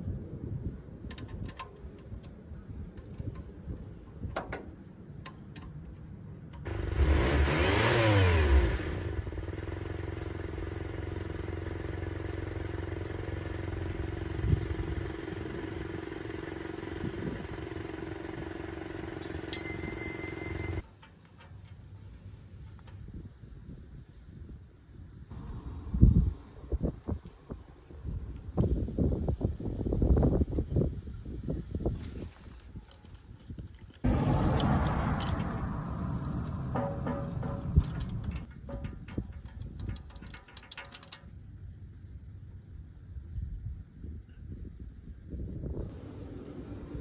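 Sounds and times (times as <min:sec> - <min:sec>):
truck engine starting and idling: 0:06.7 - 0:19.5, 0:34.1 - 0:40.3
short high tone: 0:19.6 - 0:20.8.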